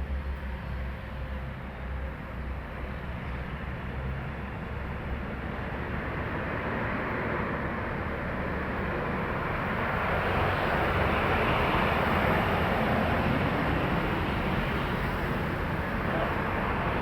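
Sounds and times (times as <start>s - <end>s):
heavy trucks passing: 1.4s - 17.0s.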